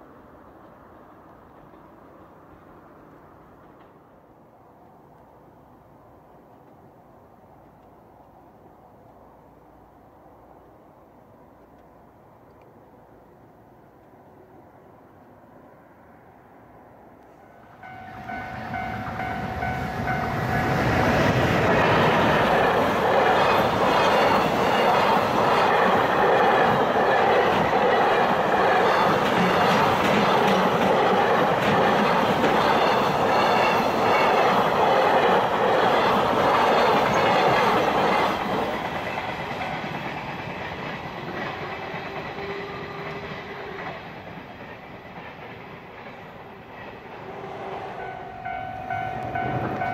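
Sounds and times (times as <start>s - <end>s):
freight train passing: 0.0s - 49.9s.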